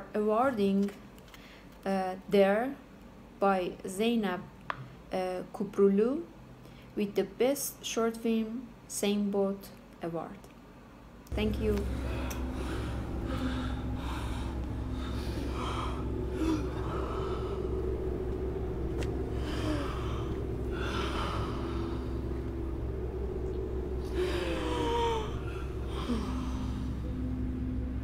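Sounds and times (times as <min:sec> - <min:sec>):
steady low hum: 0:10.8 - 0:28.0
person breathing heavily: 0:11.8 - 0:27.3
person gasping: 0:24.1 - 0:27.0.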